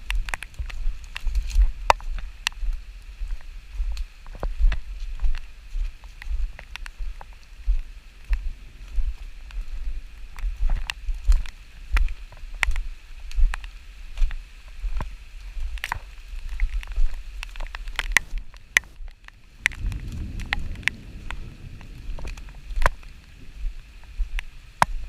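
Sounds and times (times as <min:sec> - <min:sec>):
raindrops tapping on camera: 0:00.0 - 0:25.0
wind buffeting microphone: 0:18.2 - 0:25.0.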